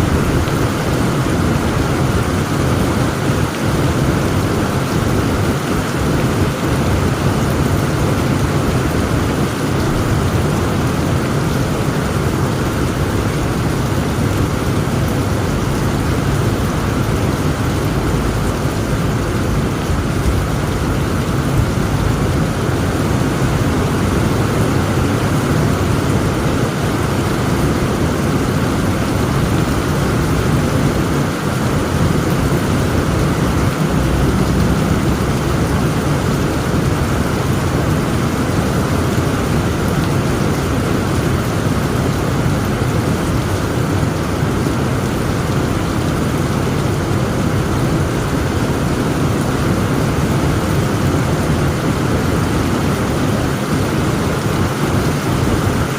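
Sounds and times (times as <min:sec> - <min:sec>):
deep thunder rumble: 0:00.0 - 0:02.2
heavy rain falling: 0:00.0 - 0:55.9.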